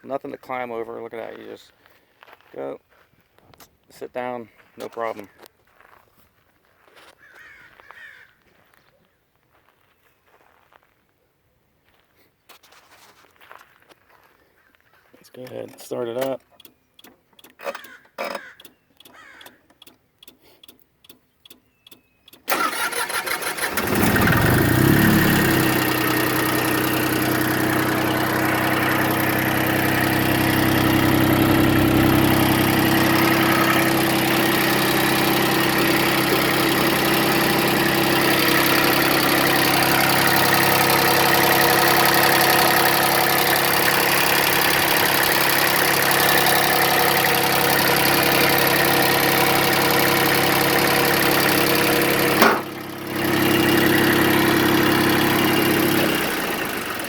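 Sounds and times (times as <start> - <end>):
tractor starter cranking: 15.5 - 57.0
faint clicks: 15.7 - 22.4
diesel engine idling: 22.5 - 57.0.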